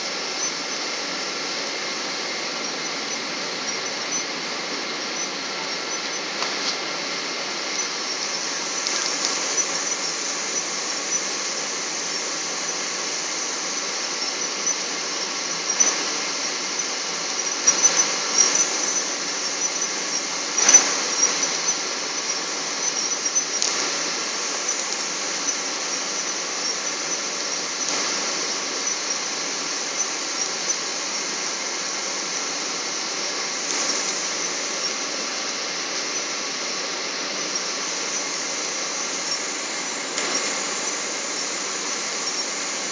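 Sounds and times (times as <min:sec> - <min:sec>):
short clicks and crackles: 0:33.6 - 0:34.3.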